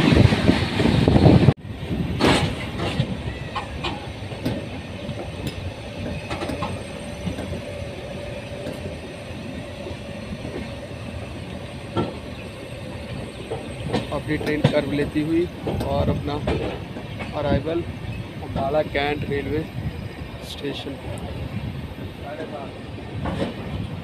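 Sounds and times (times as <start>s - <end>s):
loud train rush: 0.0s - 24.0s
wheels clicking over rail joints: 2.2s - 19.6s.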